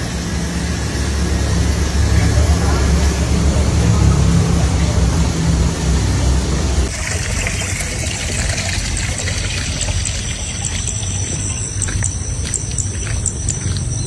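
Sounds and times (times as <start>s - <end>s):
low engine rumble: 0.0s - 14.0s
water trickling and splashing: 6.8s - 14.0s.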